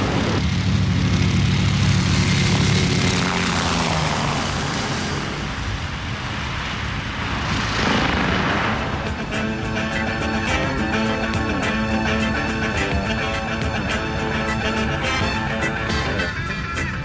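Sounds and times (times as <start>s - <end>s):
model helicopter motor and rotor whir: 0.0s - 9.3s
hum: 0.0s - 17.0s.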